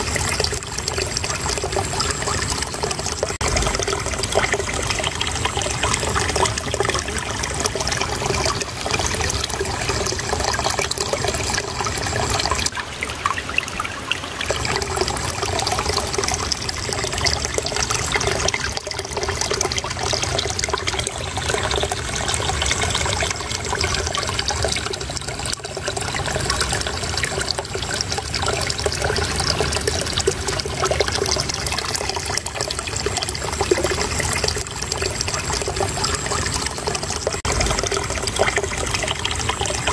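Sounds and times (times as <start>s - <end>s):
shallow water trickling: 0.0s - 39.9s.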